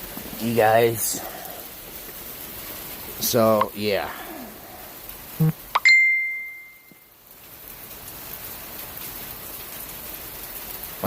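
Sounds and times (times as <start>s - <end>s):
hail and rain pattering: 0.0s - 11.0s
ringing ding: 5.8s - 7.0s.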